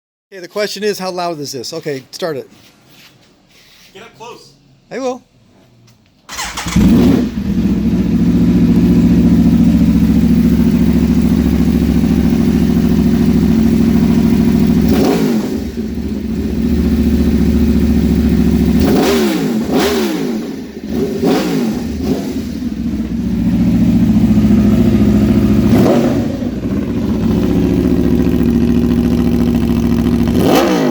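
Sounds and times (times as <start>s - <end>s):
motorcycle engine idling loudly: 7.2s - 19.0s, 21.8s - 30.9s.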